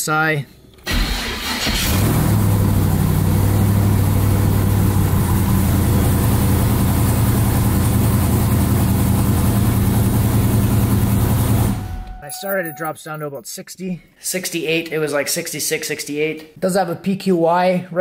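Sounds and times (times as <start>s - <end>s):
car engine idling: 0.9s - 12.2s.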